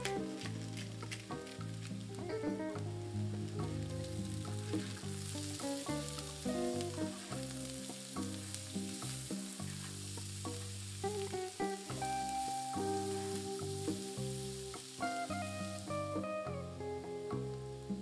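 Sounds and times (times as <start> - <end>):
background music with held notes: 0.0 - 18.0
vegetables sizzling in a pan: 0.0 - 18.0
spatula stirring in a pan: 4.3 - 12.0.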